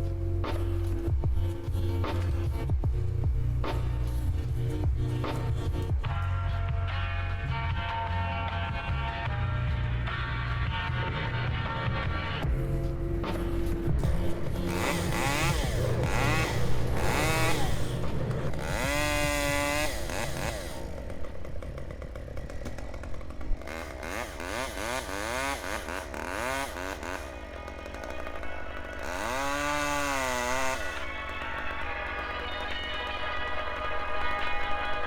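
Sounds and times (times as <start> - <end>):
chainsaw revving: 0.0 - 35.0.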